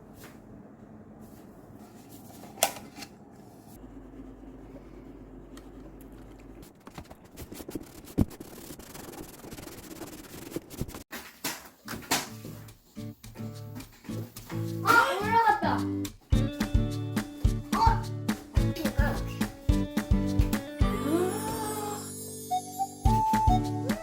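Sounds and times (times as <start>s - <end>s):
rubbing and rustling objects: 6.6s - 15.9s.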